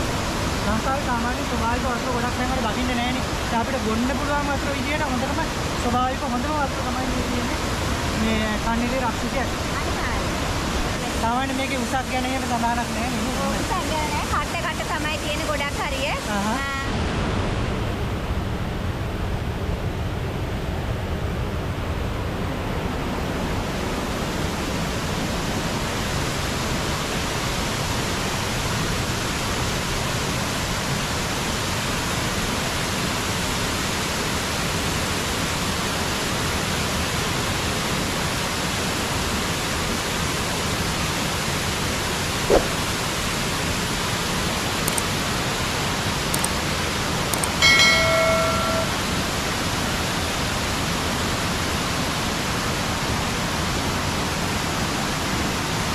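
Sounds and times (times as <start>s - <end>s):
waterfall rushing: 0.0s - 16.8s, 23.1s - 55.9s
short sharp sound: 42.5s - 42.9s.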